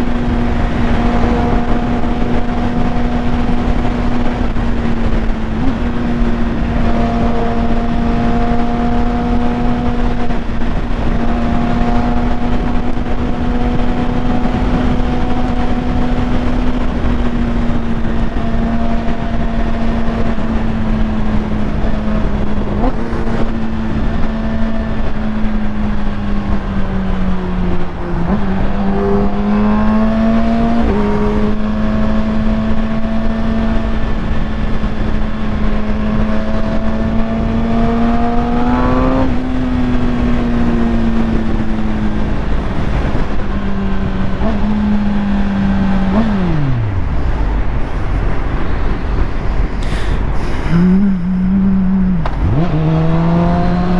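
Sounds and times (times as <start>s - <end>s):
motorcycle engine running: 0.0s - 53.9s
wind noise on microphone: 0.0s - 53.9s.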